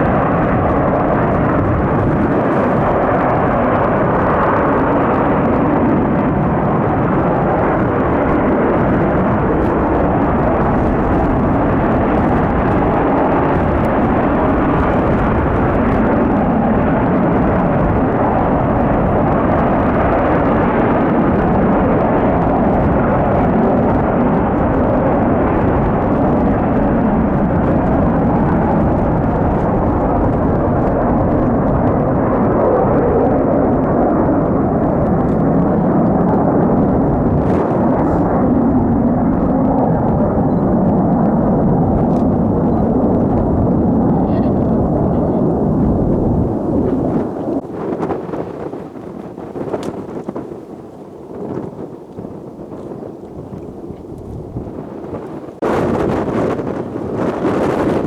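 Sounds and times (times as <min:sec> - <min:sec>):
jet aircraft roar overhead: 0:00.0 - 0:58.0
wind rumbling on microphone: 0:00.0 - 0:58.0.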